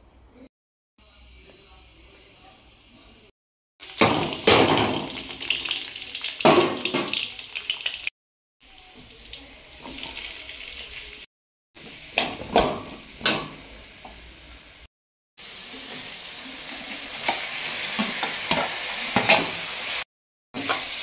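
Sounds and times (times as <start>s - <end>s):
vegetables sizzling in hot oil: 3.8s - 8.1s, 15.4s - 21.0s.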